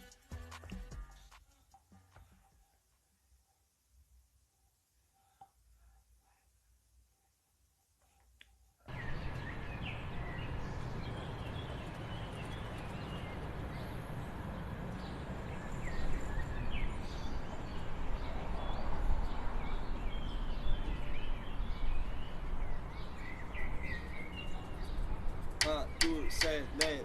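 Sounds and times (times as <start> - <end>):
birds chirping: 8.9 - 27.0.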